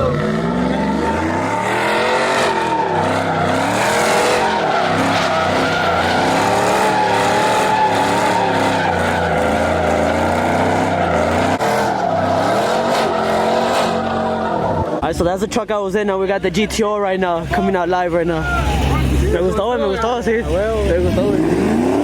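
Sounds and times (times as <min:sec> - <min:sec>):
car engine revving: 0:00.0 - 0:15.2, 0:16.4 - 0:22.0
tyres squealing: 0:00.0 - 0:15.2.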